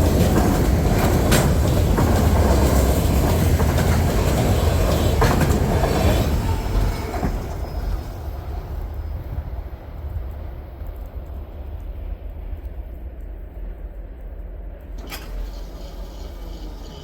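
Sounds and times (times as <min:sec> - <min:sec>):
train wheels clacking on rails: 0:00.0 - 0:10.6
freight train rumbling: 0:00.0 - 0:17.0.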